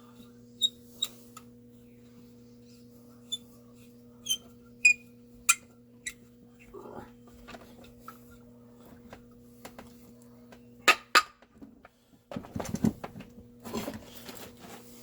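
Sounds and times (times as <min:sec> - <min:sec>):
low electrical hum: 0:00.0 - 0:15.0
rattling and scraping of parts: 0:11.4 - 0:15.0.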